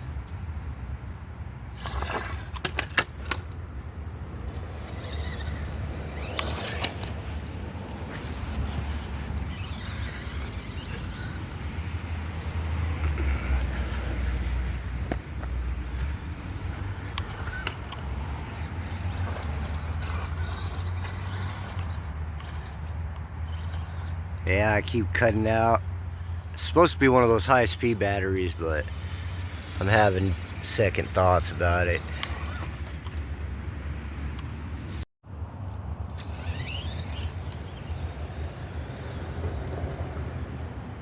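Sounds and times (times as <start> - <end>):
rc truck motor running: 0.0 - 33.5, 35.7 - 41.0.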